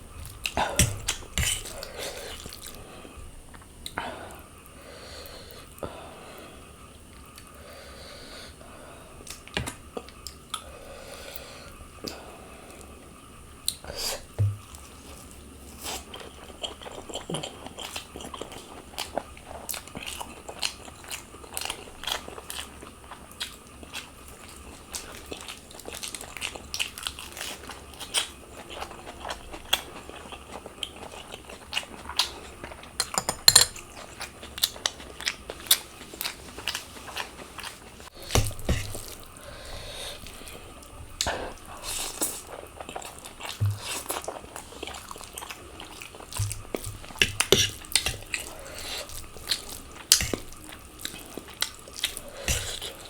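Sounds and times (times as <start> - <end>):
chewing with crisp crunches: 0.0 - 4.4, 9.2 - 53.0
dull thumps: 38.2 - 39.1.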